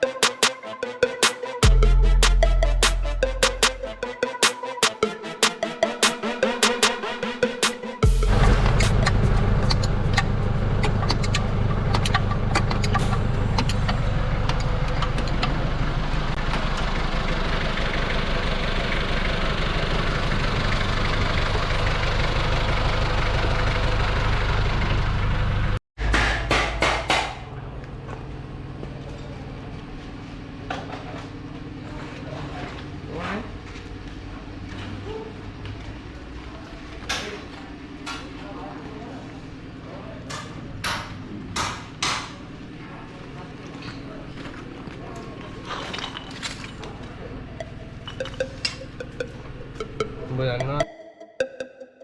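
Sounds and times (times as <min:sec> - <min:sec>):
clicks: 0:00.2 - 0:00.6, 0:01.2 - 0:07.0
diesel engine running: 0:08.0 - 0:25.8.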